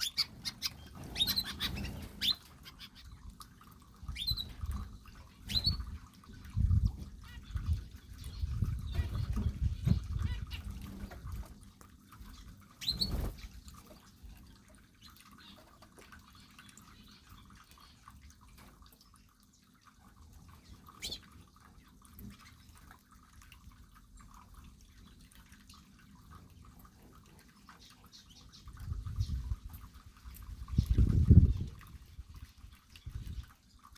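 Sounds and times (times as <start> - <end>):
high bird chirp: 0.0 - 3.1
birds feeding clicks: 0.0 - 6.6, 7.2 - 14.4.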